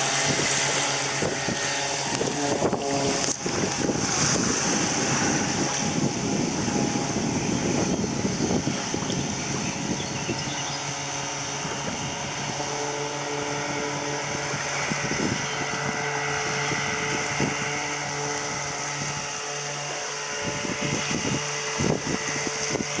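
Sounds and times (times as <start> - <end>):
thumps and splashes: 0.0 - 7.9
outboard motor running: 0.0 - 23.0
wind on microphone: 0.0 - 23.0.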